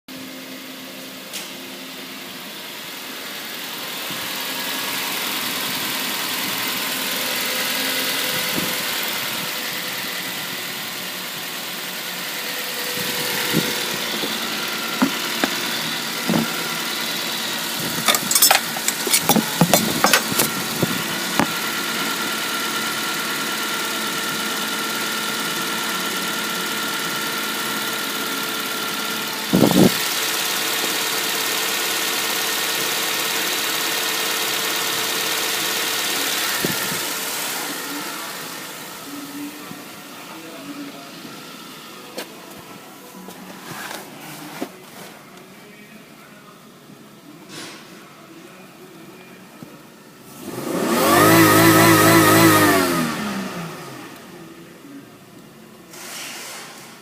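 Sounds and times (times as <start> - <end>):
car engine idling: 0.2 - 47.2
loud thump: 15.0 - 15.6, 16.3 - 16.6
sharp clicks or knocks: 18.1 - 20.5.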